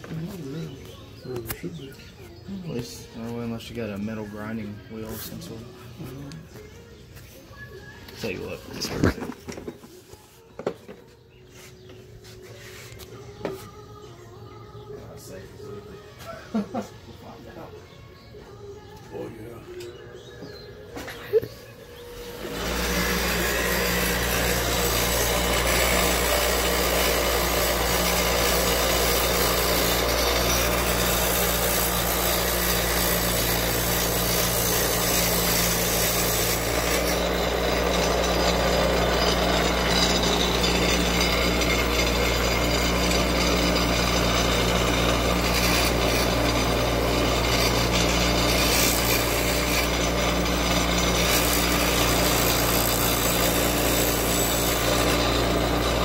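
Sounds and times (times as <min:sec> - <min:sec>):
power tool grinding: 0:19.7 - 0:56.0.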